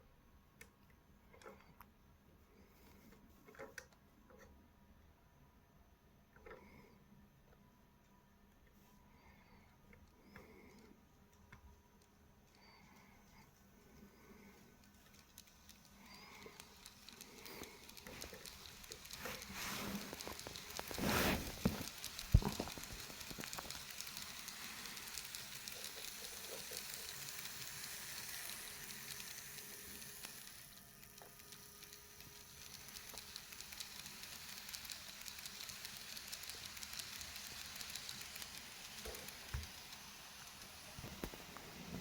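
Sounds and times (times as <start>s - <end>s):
model train wheels on rail: 13.4s - 42.0s.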